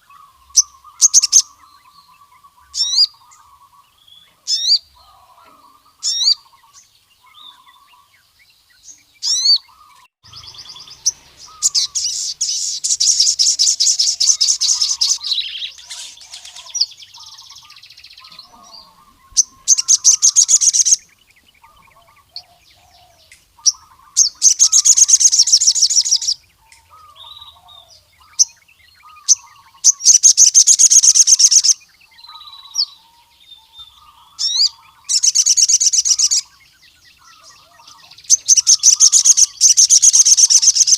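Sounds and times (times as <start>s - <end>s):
bird singing high trills: 0.0s - 40.9s
faint lower twittering: 0.0s - 40.9s
sharp rising chirps: 10.2s - 17.2s.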